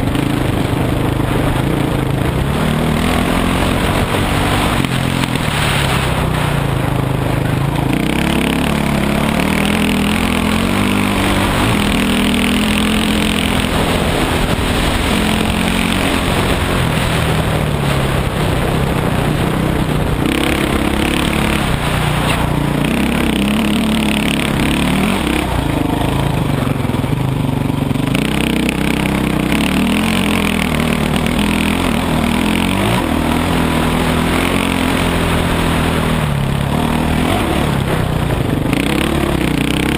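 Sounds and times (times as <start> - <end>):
dirt bike engine revving: 0.0 - 39.9
wind noise: 0.0 - 39.9.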